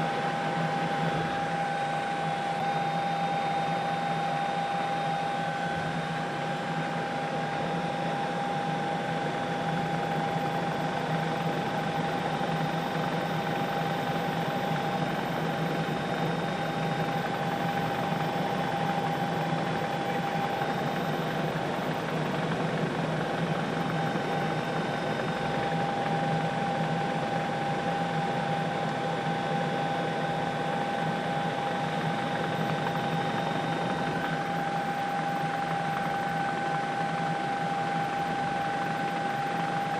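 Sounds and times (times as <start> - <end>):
helicopter turbine and rotor: 0.0 - 39.9
drivetrain whine: 9.1 - 39.9.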